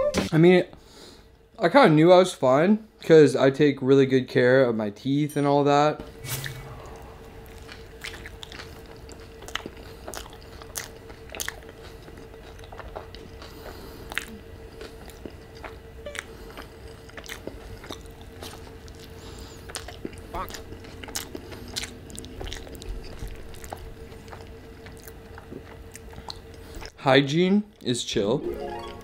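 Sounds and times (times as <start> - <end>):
faint steady hum: 0.0 - 29.0
wet chewing mouth smacks: 7.5 - 27.0.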